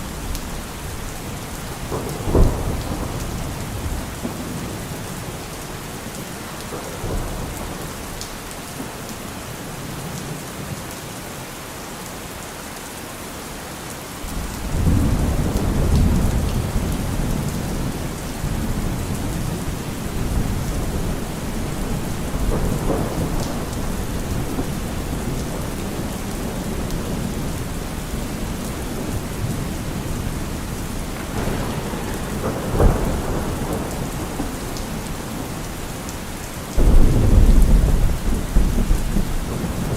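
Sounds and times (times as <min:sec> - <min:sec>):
heavy rain: 0:00.0 - 0:39.9
rolling thunder: 0:00.1 - 0:08.2, 0:14.3 - 0:39.9
sharp thunderclap: 0:01.7 - 0:05.3, 0:14.3 - 0:36.0, 0:36.8 - 0:39.9.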